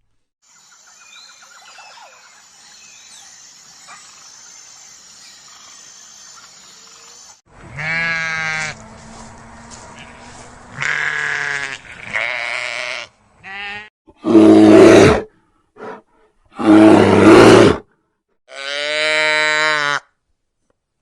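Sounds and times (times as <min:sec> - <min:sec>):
harsh farm animal calls: 0:07.6 - 0:13.9.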